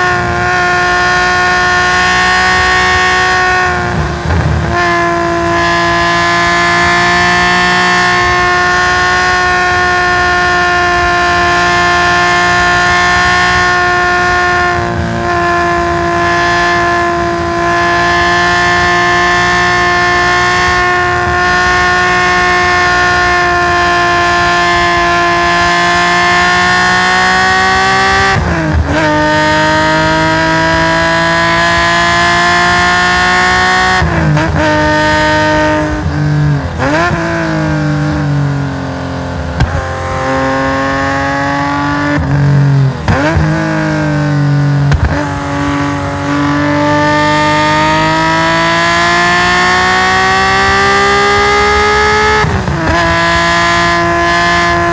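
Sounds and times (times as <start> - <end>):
car engine revving high: 0.0 - 54.9
gear change: 11.7 - 54.9.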